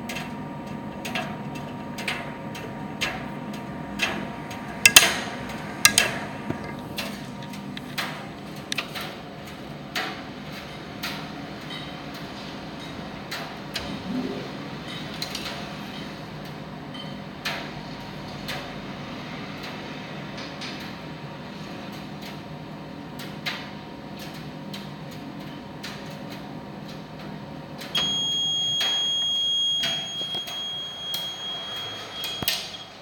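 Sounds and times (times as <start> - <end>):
sharp clicks and knocks: 1.0 - 9.1
tumble dryer humming: 3.4 - 7.9.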